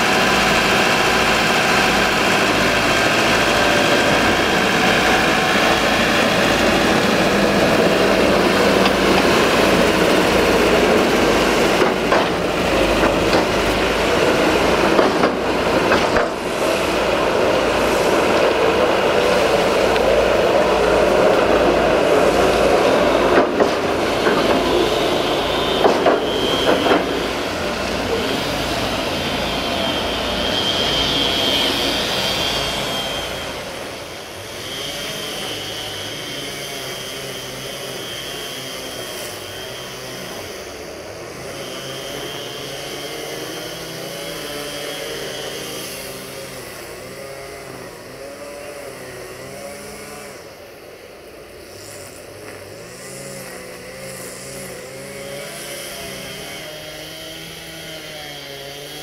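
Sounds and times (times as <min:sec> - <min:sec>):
train wheels rumbling: 0:00.0 - 0:44.4
thin high whine: 0:22.0 - 0:36.2.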